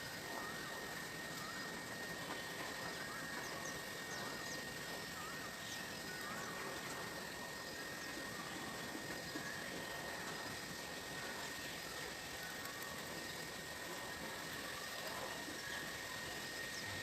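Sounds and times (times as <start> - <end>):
constant hiss: 0.0 - 17.0
steady high hum: 0.0 - 17.0.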